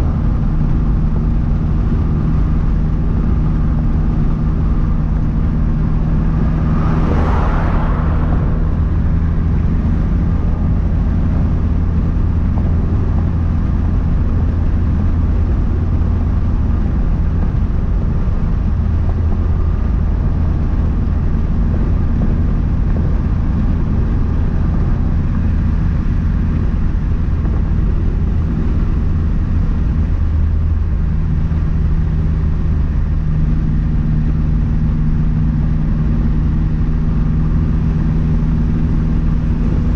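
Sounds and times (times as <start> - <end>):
turbocharged car engine running: 0.0 - 39.9.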